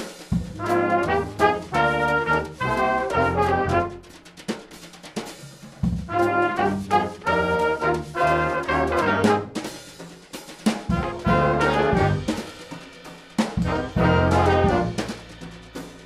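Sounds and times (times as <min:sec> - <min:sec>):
brass ensemble music: 0:00.0 - 0:04.6, 0:05.8 - 0:10.1, 0:10.7 - 0:16.0
drum kit: 0:00.0 - 0:16.0.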